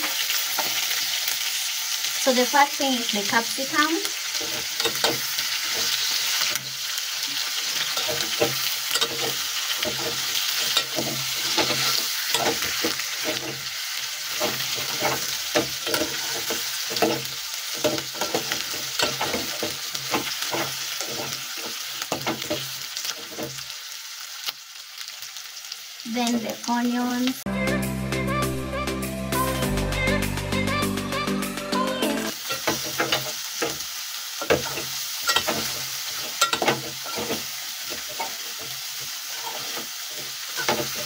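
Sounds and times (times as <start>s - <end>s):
food sizzling in a pot: 0.0s - 27.5s, 32.0s - 41.0s
metal spoon scraping a pot: 7.6s - 22.6s, 34.6s - 38.7s, 39.3s - 41.0s.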